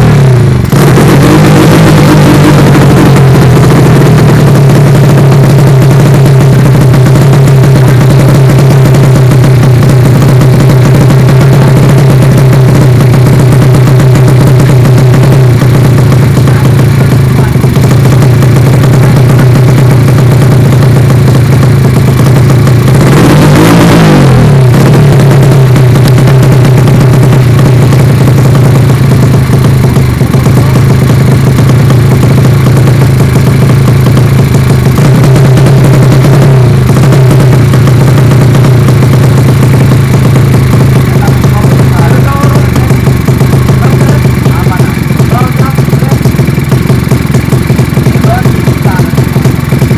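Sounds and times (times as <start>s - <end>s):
motorcycle engine idling: 0.0s - 49.9s
motorcycle throttle blip: 26.0s - 26.3s.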